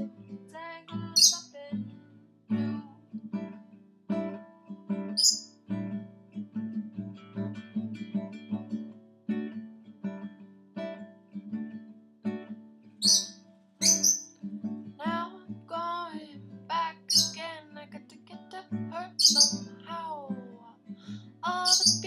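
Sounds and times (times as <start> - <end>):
acoustic guitar strumming: 0.0 - 22.0
lovebird chirping: 1.0 - 1.6, 5.2 - 5.5, 13.0 - 14.4, 17.0 - 17.5, 19.0 - 19.8, 21.4 - 22.0.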